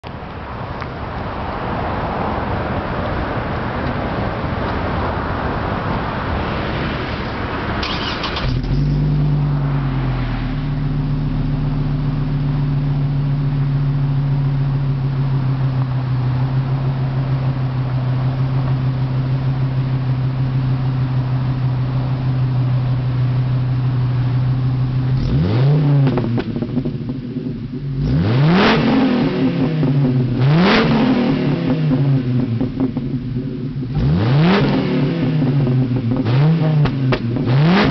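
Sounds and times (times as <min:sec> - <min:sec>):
engine exhaust rushing noise: 0:00.4 - 0:37.9
car engine idling: 0:07.2 - 0:30.6, 0:31.2 - 0:34.2
engine revving in quick blips: 0:07.8 - 0:10.8, 0:25.1 - 0:26.8, 0:28.0 - 0:32.9, 0:33.9 - 0:37.9.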